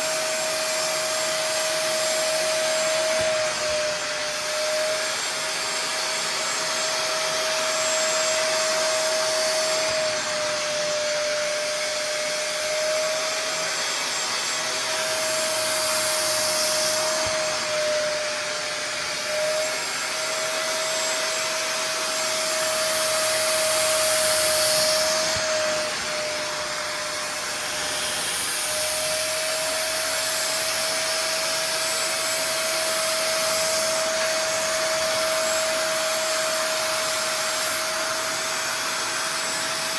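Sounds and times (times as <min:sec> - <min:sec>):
carpet cleaner motor whine: 0:00.0 - 0:39.9
suction hiss: 0:00.0 - 0:39.9.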